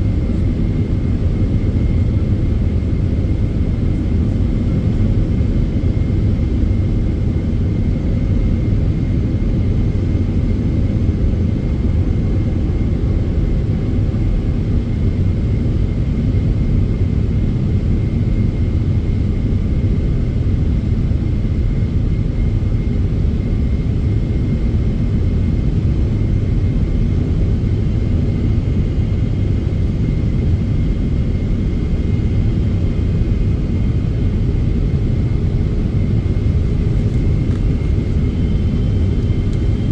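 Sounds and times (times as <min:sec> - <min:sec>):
airliner cabin rumble: 0:00.0 - 0:39.9
faint steady whine: 0:23.2 - 0:39.9.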